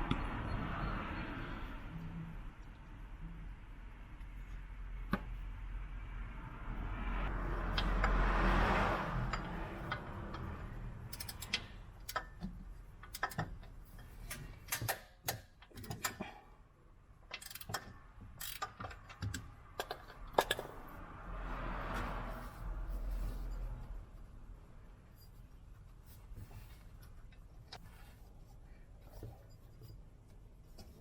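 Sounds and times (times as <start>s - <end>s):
sharp metallic clicks and clinks: 9.1s - 16.2s.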